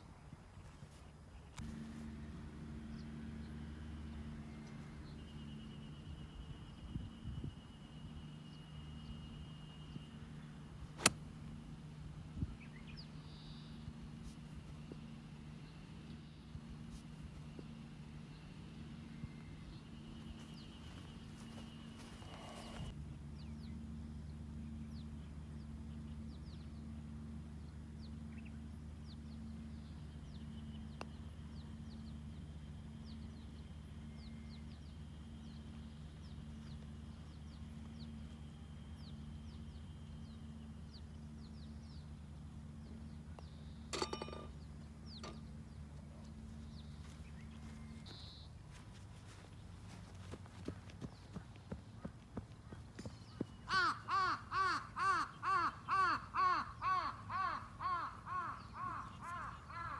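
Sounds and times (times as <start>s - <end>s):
steady low hum: 0.0s - 59.9s
small birds chirping: 19.2s - 23.8s, 28.0s - 59.9s.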